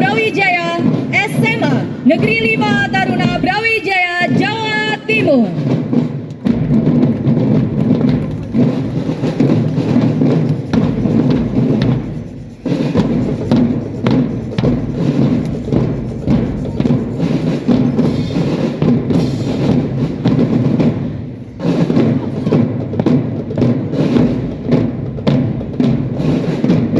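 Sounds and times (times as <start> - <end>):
marching drum band: 0.0 - 26.9.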